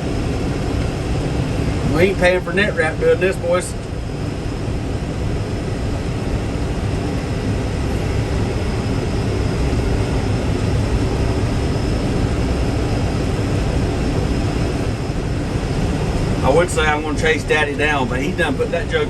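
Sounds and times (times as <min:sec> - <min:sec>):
faint steady whine: 0:00.0 - 0:19.0
tractor engine running: 0:12.4 - 0:19.0.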